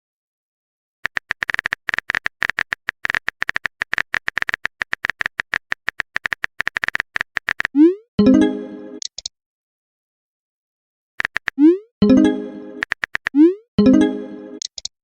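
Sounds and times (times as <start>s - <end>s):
keyboard typing clicks: 1.0s - 7.9s, 9.0s - 9.3s, 11.2s - 12.2s, 12.8s - 13.6s, 14.6s - 14.9s.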